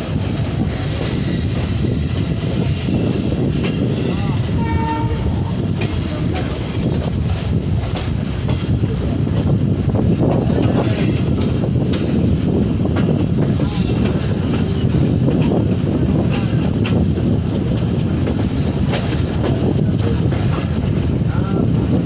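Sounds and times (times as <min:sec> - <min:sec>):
train rumbling on track: 0:00.0 - 0:22.0
train horn: 0:04.3 - 0:05.5.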